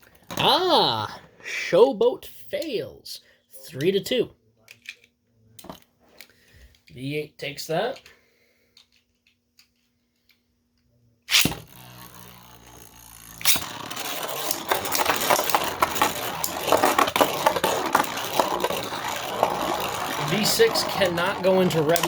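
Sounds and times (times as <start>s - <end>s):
spinning tops clattering: 11.3s - 22.0s.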